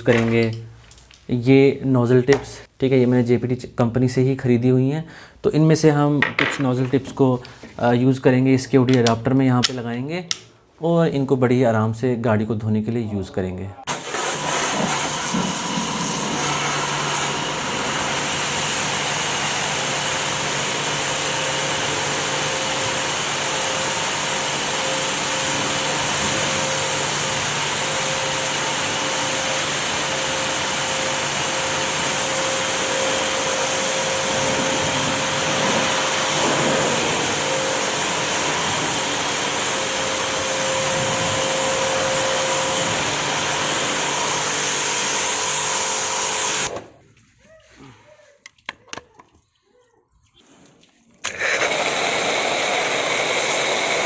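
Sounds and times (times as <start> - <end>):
pressure washer running: 13.9 - 46.9, 51.2 - 54.0.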